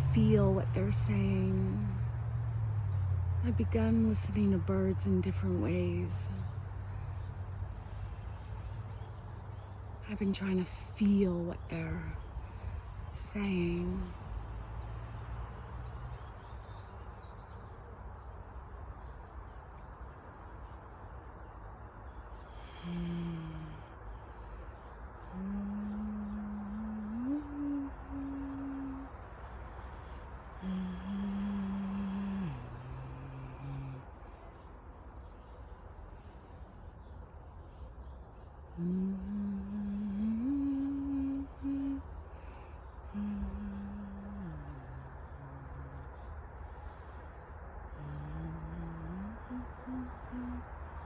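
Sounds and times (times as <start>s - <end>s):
woman humming low note: 0.0s - 2.2s, 22.6s - 23.9s, 25.3s - 29.3s, 30.6s - 34.2s, 38.7s - 46.3s, 47.9s - 50.7s
small birds chirping: 0.0s - 51.0s.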